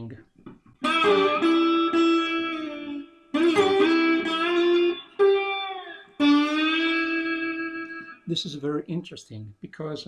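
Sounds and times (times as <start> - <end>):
slide guitar gliding notes: 0.8 - 8.3.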